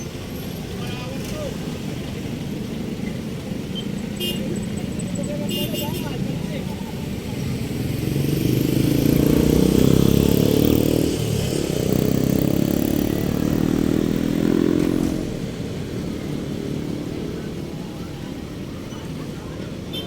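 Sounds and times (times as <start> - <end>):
engine running hard: 0.0 - 20.0.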